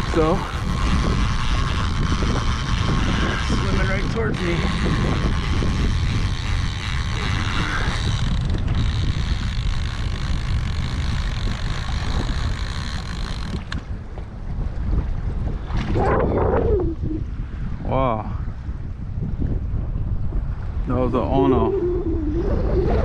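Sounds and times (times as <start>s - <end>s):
water hissing along hull: 0.0s - 13.7s
wind buffeting microphone: 0.0s - 23.0s.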